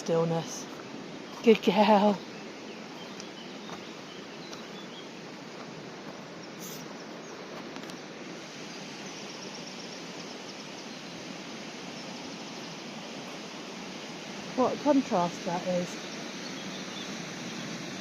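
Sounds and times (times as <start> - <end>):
faint bird chirps: 1.2 - 7.5
river water pouring over a weir: 7.4 - 18.0.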